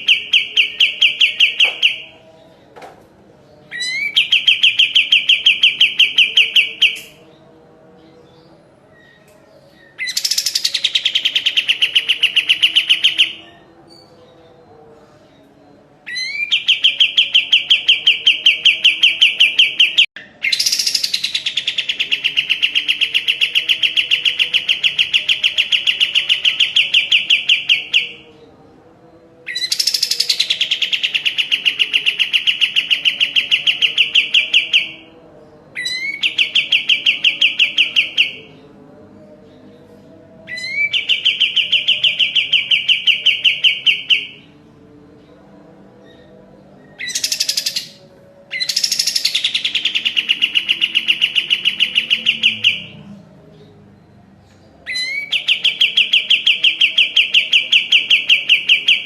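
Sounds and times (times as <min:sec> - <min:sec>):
songbird singing rapid trills: 0:46.9 - 0:53.0.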